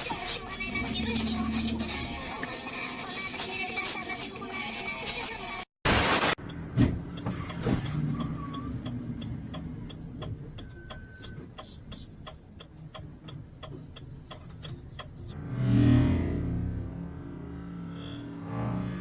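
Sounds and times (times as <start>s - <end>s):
burst of noise: 5.9s - 6.4s
regular ticking: 6.4s - 15.4s
low hum: 15.2s - 19.0s.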